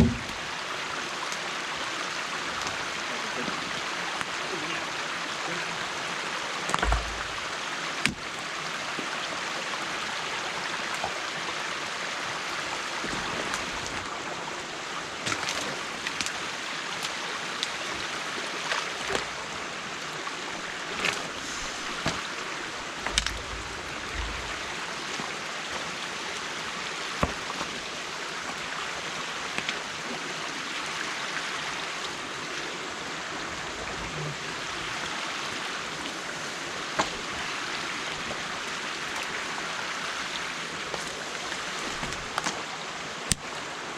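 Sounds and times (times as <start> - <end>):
knocks: 0.0 - 0.4
low thumps: 0.0 - 0.4
water running over dam: 0.0 - 43.9.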